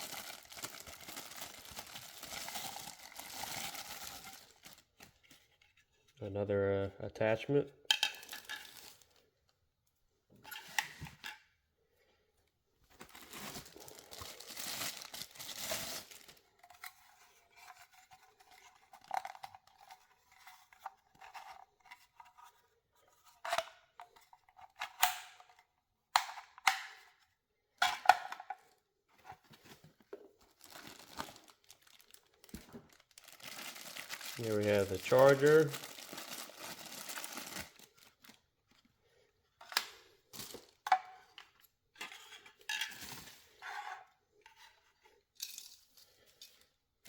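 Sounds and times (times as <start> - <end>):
plastic packaging crinkling and tearing: 0.0 - 5.2, 8.1 - 9.2, 13.0 - 16.5, 30.4 - 38.4.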